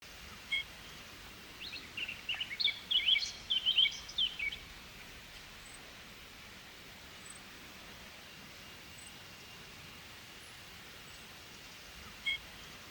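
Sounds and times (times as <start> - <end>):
faint background hiss: 0.0 - 12.9
small bird chirping: 1.6 - 4.7.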